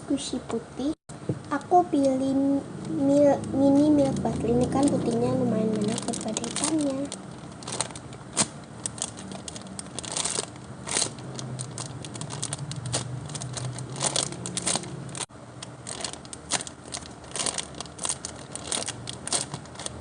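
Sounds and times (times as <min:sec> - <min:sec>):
foam toy squeezed crinkling: 0:04.0 - 0:20.0.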